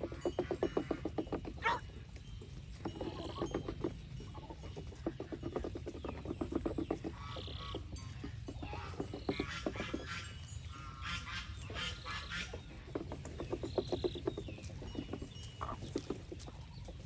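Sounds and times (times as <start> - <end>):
geese gabbling: 6.5 - 13.1
geese honking: 8.7 - 12.8.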